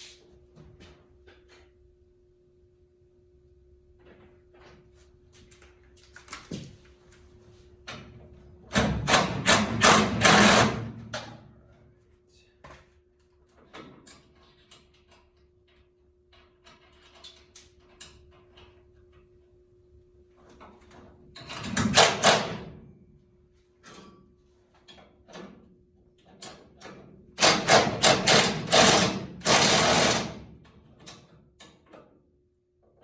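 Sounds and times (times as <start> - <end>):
power tool rattling: 8.8 - 11.0, 27.4 - 30.5.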